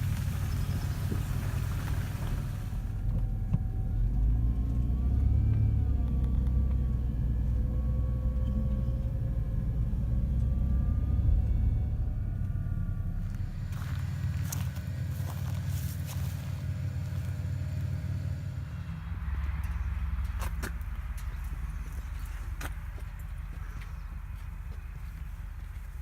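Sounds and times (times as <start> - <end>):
faint wavering tones: 0.0 - 16.5
low engine rumble: 0.0 - 26.0.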